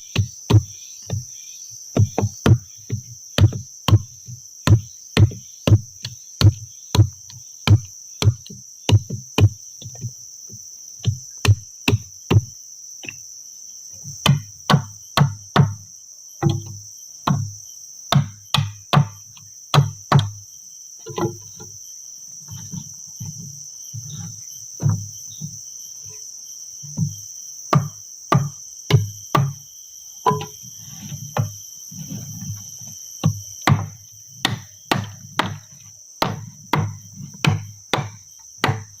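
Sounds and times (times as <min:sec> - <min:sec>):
wood being chopped by hand: 0:00.0 - 0:01.3, 0:01.9 - 0:10.1, 0:11.0 - 0:13.2, 0:14.1 - 0:15.8, 0:16.4 - 0:20.4, 0:27.0 - 0:29.6, 0:30.2 - 0:30.6, 0:33.2 - 0:39.0
insects droning: 0:00.0 - 0:39.0.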